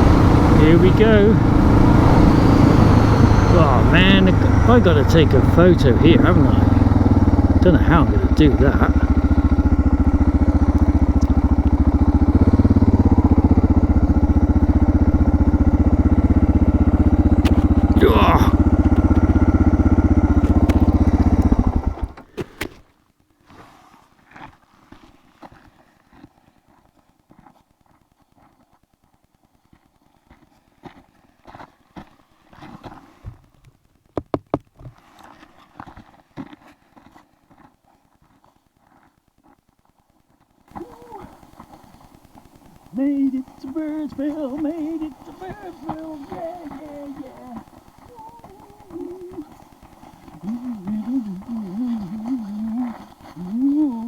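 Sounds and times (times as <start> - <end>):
single-cylinder engine running: 0.0 - 22.3, 40.7 - 54.0.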